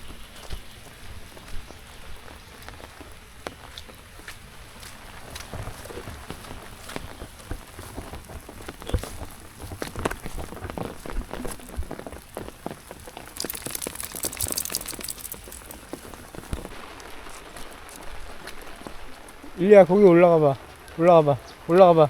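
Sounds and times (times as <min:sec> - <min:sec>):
raindrops tapping: 0:06.3 - 0:16.7.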